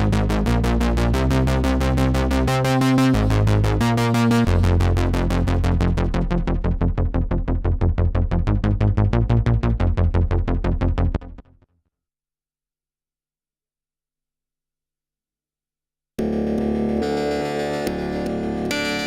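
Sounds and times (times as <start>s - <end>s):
synthesizer chords over bass line: 0.0s - 11.6s, 16.2s - 19.0s.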